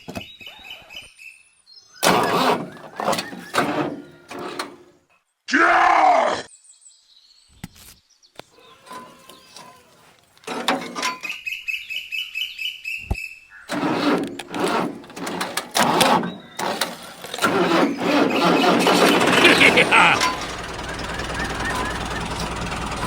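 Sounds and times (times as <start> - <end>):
small tractor motor chugging: 2.0 - 4.8, 8.7 - 11.0, 13.7 - 23.0.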